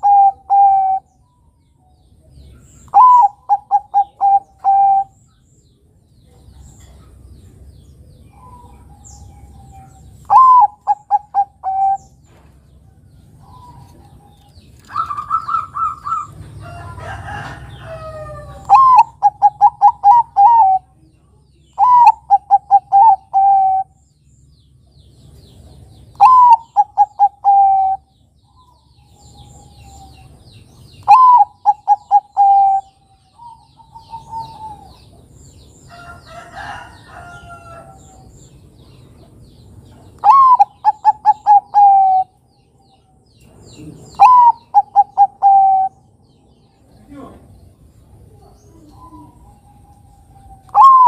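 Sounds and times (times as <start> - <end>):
dove cooing: 0.0 - 1.1, 2.9 - 5.2, 8.3 - 12.2, 13.4 - 21.0, 21.8 - 24.0, 26.1 - 30.2, 31.0 - 35.2, 40.2 - 42.4, 43.7 - 46.0, 48.3 - 51.0.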